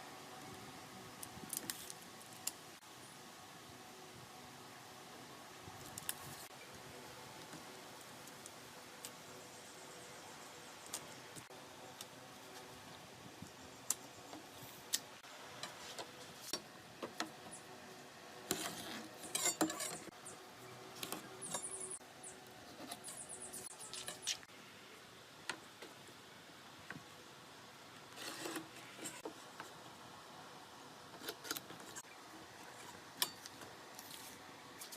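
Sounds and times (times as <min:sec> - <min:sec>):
tools and wood clicking and knocking: 0:18.5 - 0:20.1.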